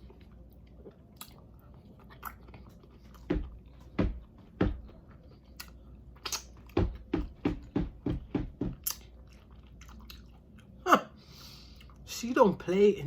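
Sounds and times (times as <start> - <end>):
chewing food: 0.0 - 7.3, 8.7 - 10.8, 11.6 - 12.1.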